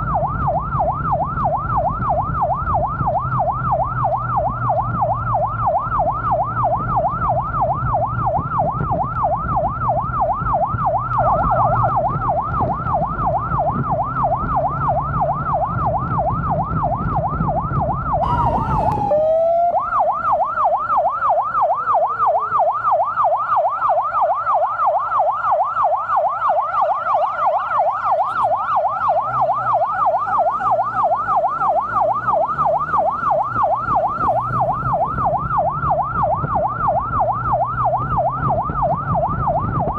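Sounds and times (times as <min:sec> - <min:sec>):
low engine rumble: 0:00.0 - 0:23.6
siren warbling yelp: 0:00.0 - 0:39.9.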